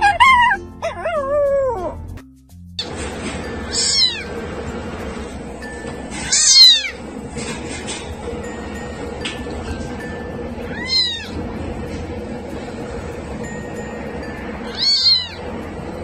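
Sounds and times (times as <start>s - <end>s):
dog whining: 0.0s - 2.1s, 3.7s - 4.3s, 6.2s - 7.0s, 14.7s - 15.5s
kitten meowing: 3.7s - 4.3s, 6.3s - 7.0s, 10.7s - 11.4s, 14.7s - 15.4s.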